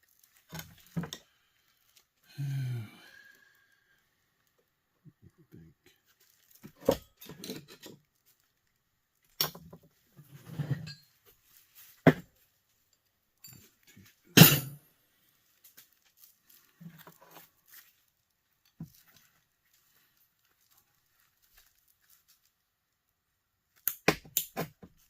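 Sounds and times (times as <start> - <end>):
plastic parts knocking and clicking: 23.8 - 25.0.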